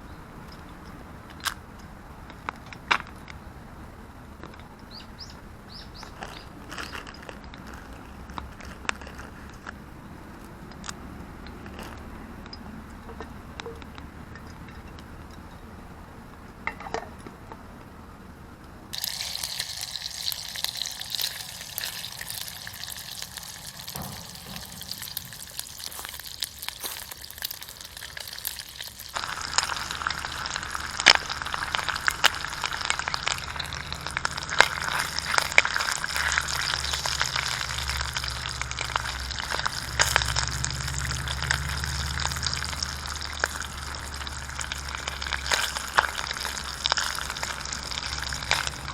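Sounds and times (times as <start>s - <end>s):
food sizzling in a pan: 19.0s - 48.9s.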